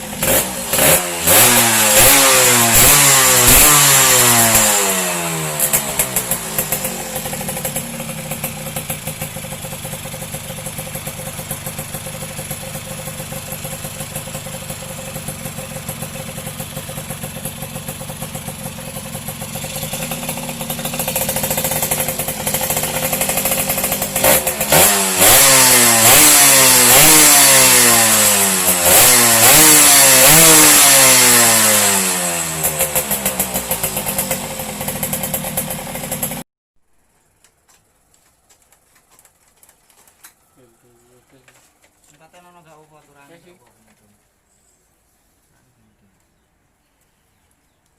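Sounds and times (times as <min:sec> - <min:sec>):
two-stroke motorcycle engine revving: 0:00.0 - 0:36.4.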